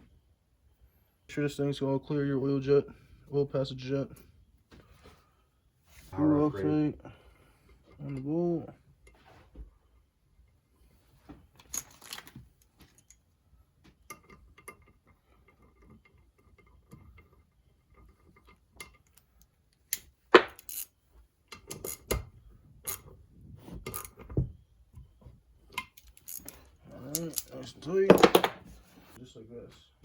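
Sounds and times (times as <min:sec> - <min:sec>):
metal tools clicking on engine parts: 0:14.1 - 0:22.2, 0:25.7 - 0:27.7.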